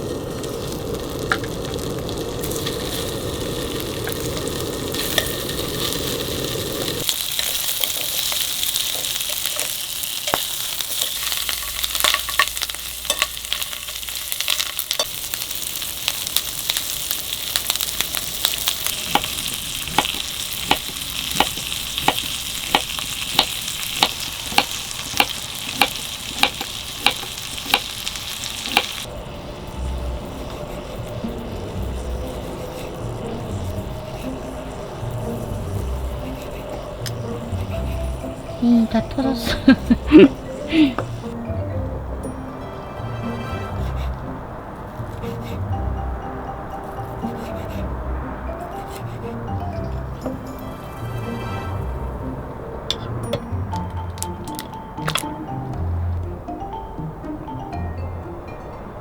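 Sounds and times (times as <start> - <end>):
popping in a pan: 0.0 - 38.6
food sizzling in a pan: 0.0 - 41.4.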